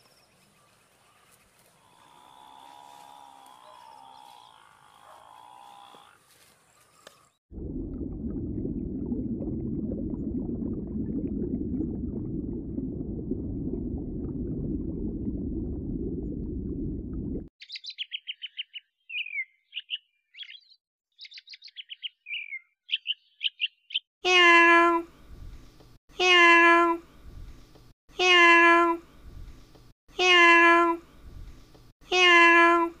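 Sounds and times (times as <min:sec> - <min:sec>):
bird chirps and trills: 0:17.6 - 0:24.1.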